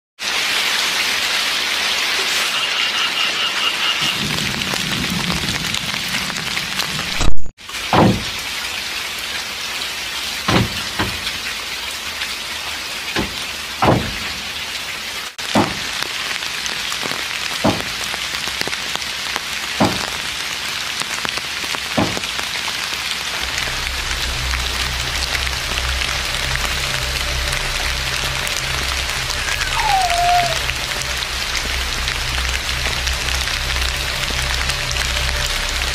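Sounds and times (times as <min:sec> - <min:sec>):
drizzling rain hissing: 0:00.2 - 0:35.9
heavy raindrops plopping: 0:00.2 - 0:35.9
loud sharp knock: 0:08.0 - 0:08.2, 0:15.6 - 0:15.8.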